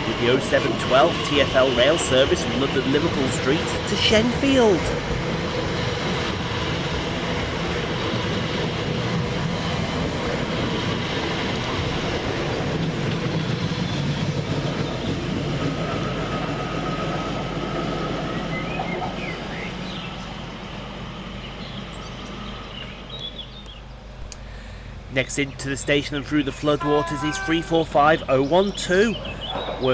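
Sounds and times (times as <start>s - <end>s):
train wheels rumbling: 0.0s - 22.6s.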